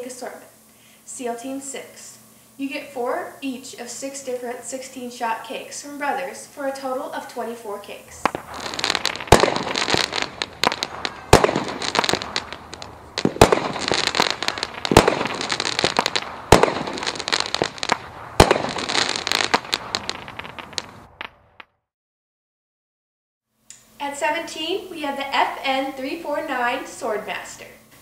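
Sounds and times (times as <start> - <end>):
firework crackling: 8.0 - 21.7
firework booming reports: 8.1 - 21.6.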